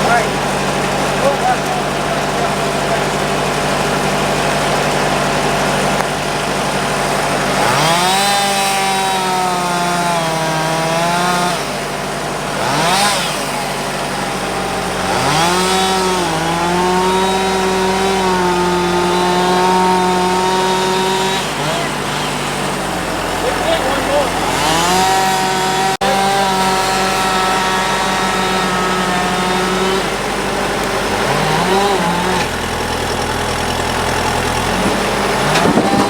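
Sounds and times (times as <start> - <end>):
chainsaw revving: 0.0 - 36.0
engine idling: 0.0 - 36.0.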